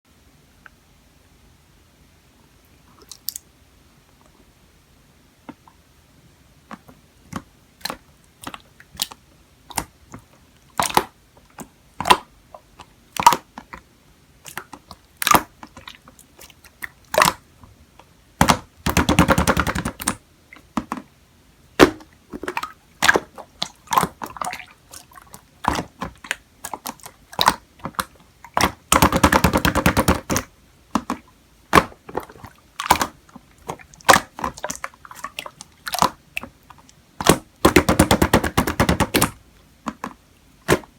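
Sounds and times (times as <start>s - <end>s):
sharp clicks and taps: 37.2s - 40.9s.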